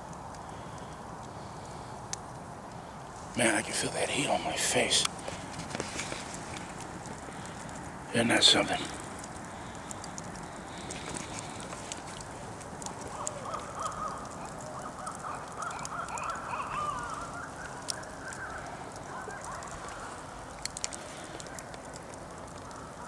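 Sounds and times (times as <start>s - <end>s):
campfire crackling: 0.0s - 23.0s
owls caterwauling: 13.0s - 20.3s.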